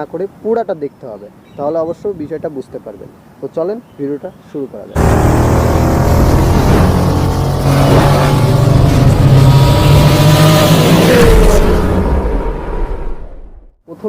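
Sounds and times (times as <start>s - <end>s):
vehicle engine running loudly: 5.0s - 12.5s.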